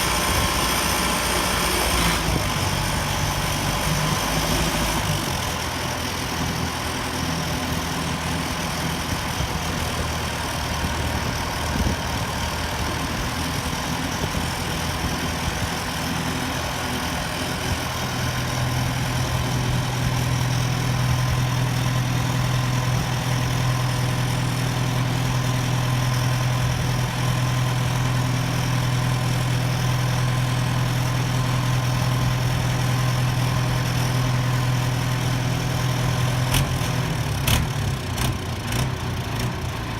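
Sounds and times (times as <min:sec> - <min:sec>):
truck engine idling: 0:00.0 - 0:39.9.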